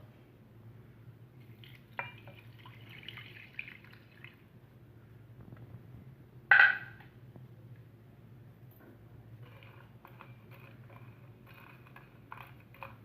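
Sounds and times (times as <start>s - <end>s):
water pouring and dripping: 1.4s - 4.4s.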